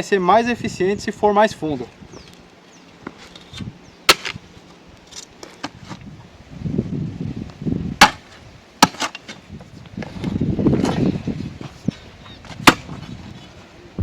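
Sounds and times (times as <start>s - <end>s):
scraping of soil and stone: 3.0s - 6.1s, 8.0s - 13.7s
digger blades striking stony ground: 3.1s - 4.4s, 8.0s - 9.4s, 12.5s - 13.1s.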